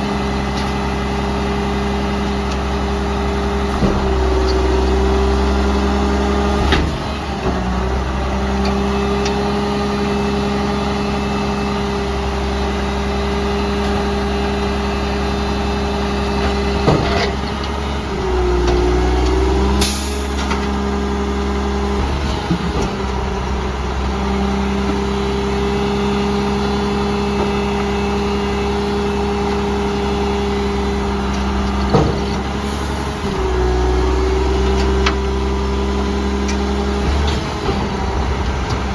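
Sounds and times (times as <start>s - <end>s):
garbage truck engine running: 0.0s - 38.9s
knocks and clanks: 16.4s - 20.8s, 31.3s - 33.5s.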